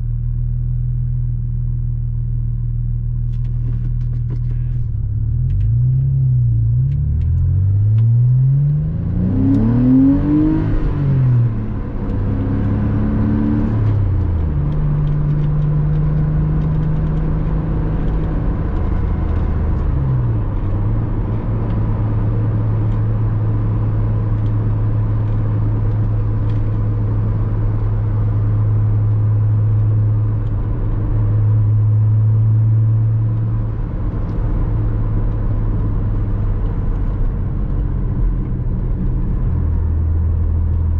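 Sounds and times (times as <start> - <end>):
road noise: 0.0 - 40.9
car engine revving: 3.5 - 40.9.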